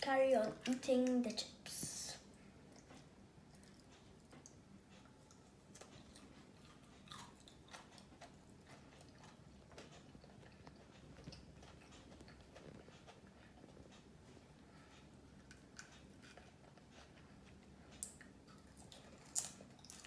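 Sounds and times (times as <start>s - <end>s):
chewing and crunching: 2.6s - 20.0s.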